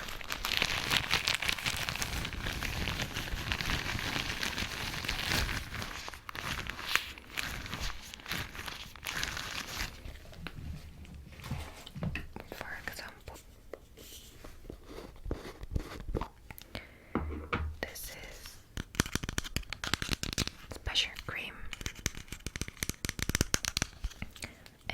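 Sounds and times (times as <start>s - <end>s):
latex gloves crinkling: 0.0s - 12.0s, 18.8s - 20.8s, 21.7s - 24.6s.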